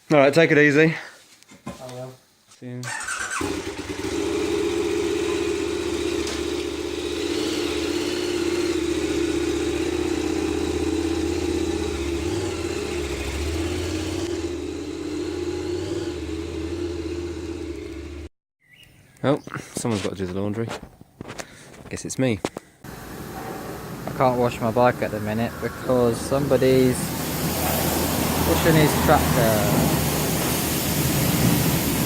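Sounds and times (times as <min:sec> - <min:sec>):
vehicle engine running: 0:03.4 - 0:18.3, 0:22.9 - 0:32.0.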